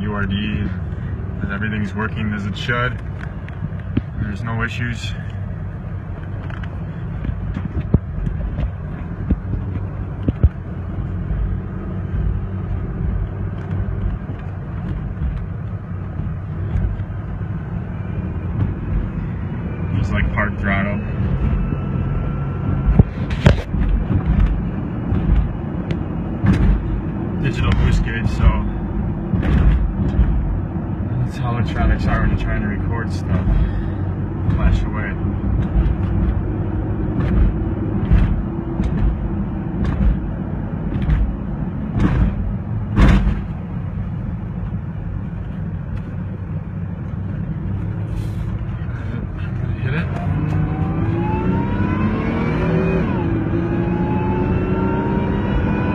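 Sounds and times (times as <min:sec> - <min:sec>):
engine and road rumble: 0:00.0 - 0:55.9.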